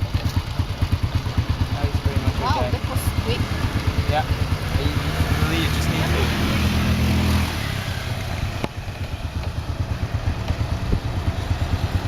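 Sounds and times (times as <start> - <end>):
motorbike engines in traffic: 0.0 - 12.0.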